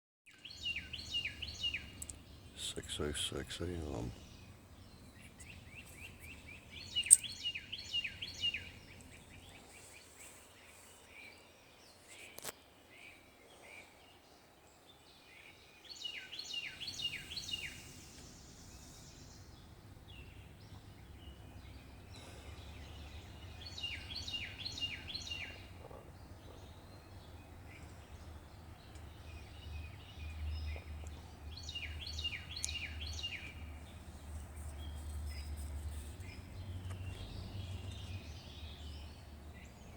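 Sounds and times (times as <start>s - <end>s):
songbird whistled song: 0.3s - 3.0s, 4.2s - 14.2s, 15.0s - 33.8s.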